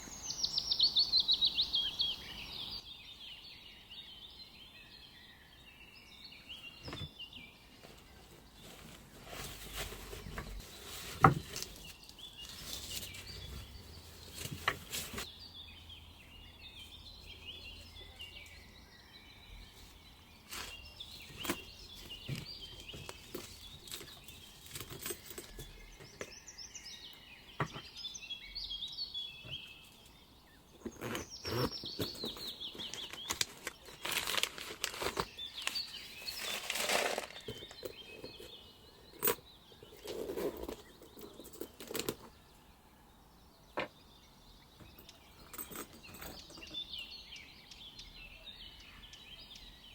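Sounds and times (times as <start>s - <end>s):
birds chirping: 0.0s - 49.9s
packaging rustling and crinkling: 30.9s - 38.4s.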